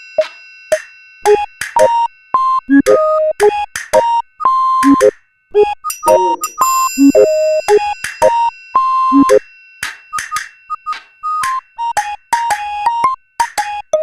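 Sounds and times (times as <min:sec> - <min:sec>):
short electronic beeps: 0:00.7 - 0:09.4.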